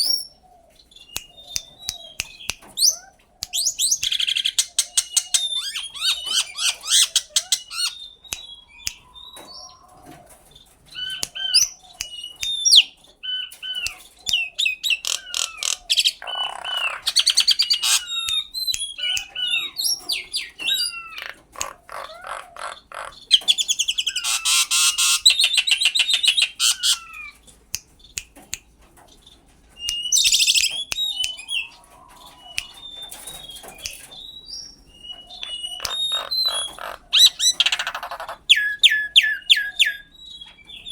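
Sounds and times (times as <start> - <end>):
myna calling: 12.7 - 27.4, 35.1 - 40.1.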